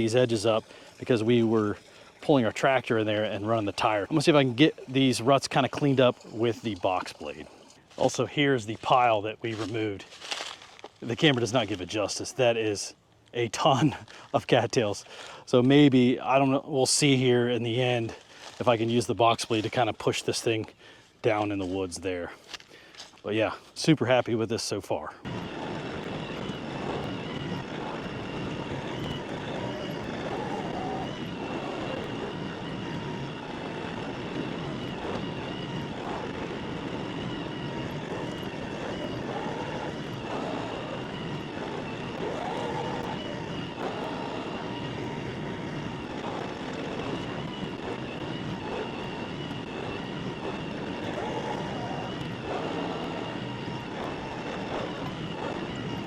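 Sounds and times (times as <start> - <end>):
tractor diesel engine running: 0.0 - 12.6, 25.2 - 56.0
thin high whine: 0.0 - 22.2, 25.2 - 56.0.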